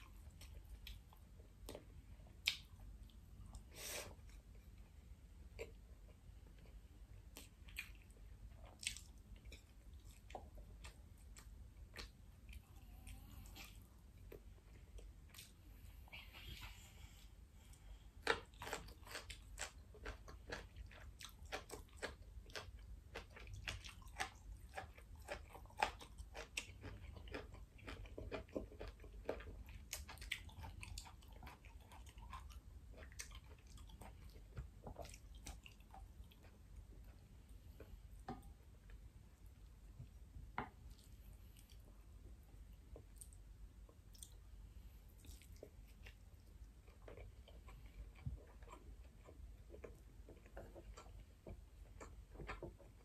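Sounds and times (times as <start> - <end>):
crunchy chewing: 18.1 - 38.0, 42.9 - 53.0.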